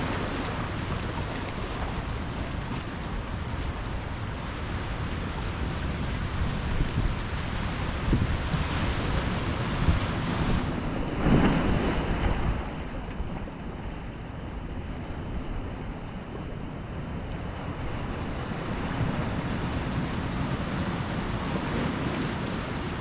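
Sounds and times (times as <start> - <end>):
water washing: 0.0 - 3.8
wave breaking: 0.0 - 13.4, 17.7 - 23.0
wind on microphone: 0.0 - 23.0.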